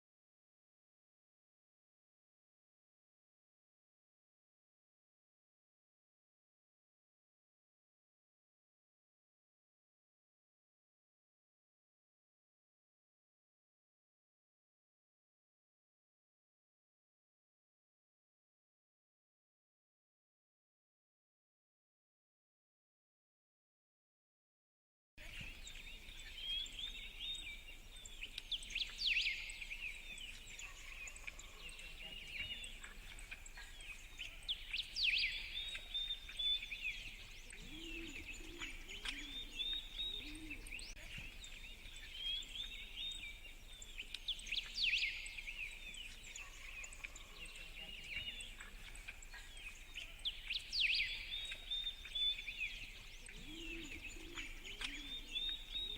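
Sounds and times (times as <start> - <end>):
sharp bird calls: 25.2 - 55.9
small birds chirping and trilling: 25.2 - 55.9.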